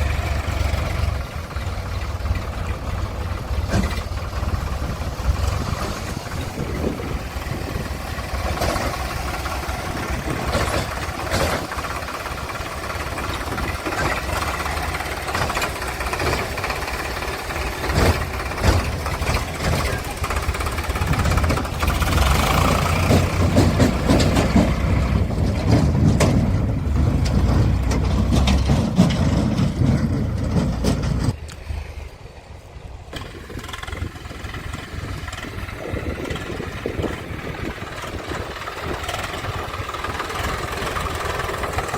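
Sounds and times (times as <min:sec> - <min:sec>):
diesel engines running: 0:00.0 - 0:41.9
short knocks or clanks: 0:17.8 - 0:31.4.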